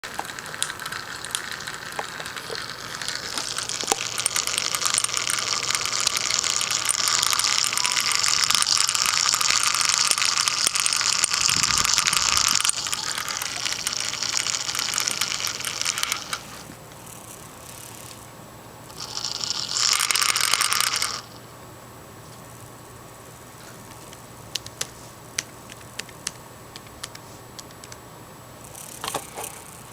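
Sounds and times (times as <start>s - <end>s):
laptop fan rattling rasp: 0.0s - 21.4s, 28.6s - 29.9s.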